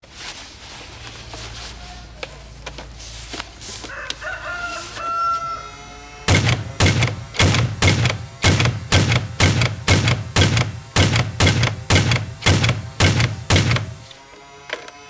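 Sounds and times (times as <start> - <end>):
rooster crowing: 3.8 - 6.2
loud low thudding beat: 6.3 - 14.1.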